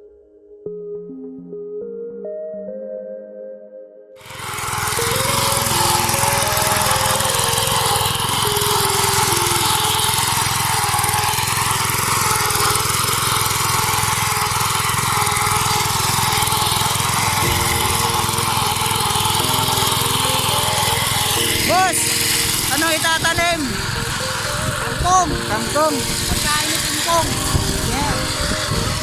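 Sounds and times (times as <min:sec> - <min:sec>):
hand tractor engine running: 0:04.2 - 0:29.0.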